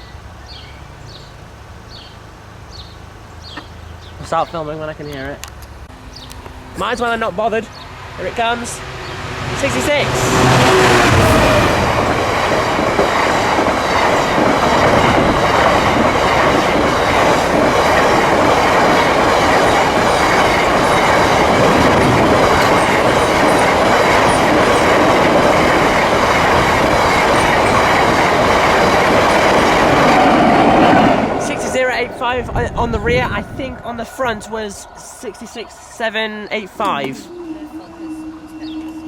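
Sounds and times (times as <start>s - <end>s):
freight train passing: 0.0s - 39.0s
wheels on rails: 5.2s - 36.2s.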